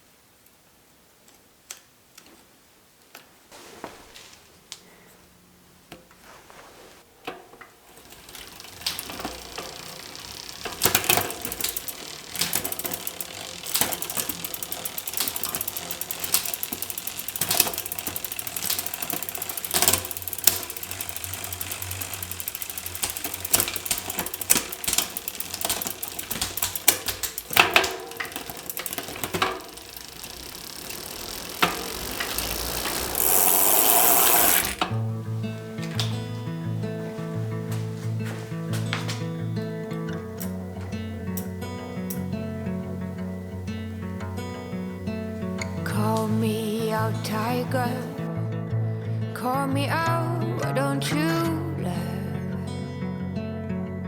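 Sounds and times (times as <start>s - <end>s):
mechanical clicking and ratcheting: 8.0s - 35.0s.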